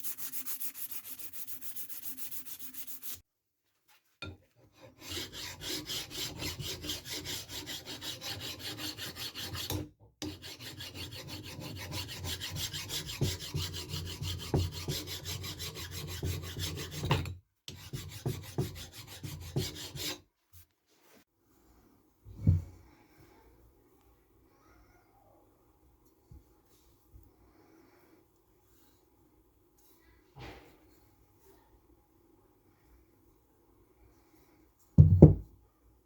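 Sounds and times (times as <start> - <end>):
file scraping steel anvil: 4.2 - 20.2.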